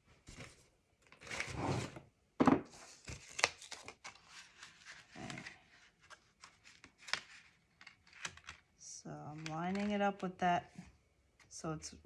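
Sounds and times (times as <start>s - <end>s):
paper rustling: 2.8s - 8.6s
paper crinkling: 2.8s - 8.7s, 9.3s - 10.2s.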